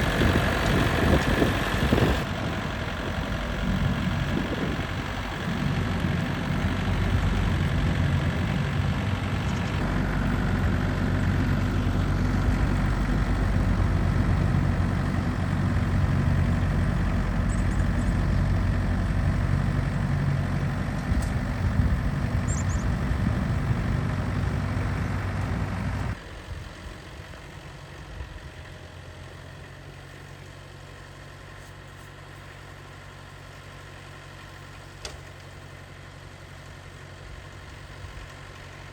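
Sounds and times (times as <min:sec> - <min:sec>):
snowblower engine running: 0:00.0 - 0:38.9.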